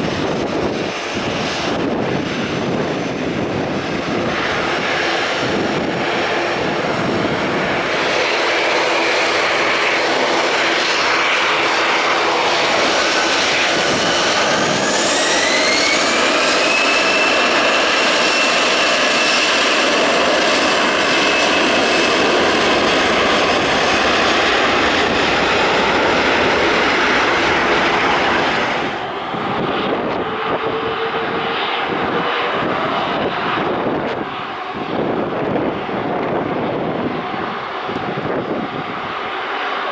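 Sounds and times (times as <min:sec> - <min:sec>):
dull jet engine noise: 0:00.0 - 0:39.9
jet engine whine rising: 0:00.0 - 0:39.9
jet engines running loud: 0:00.0 - 0:39.9.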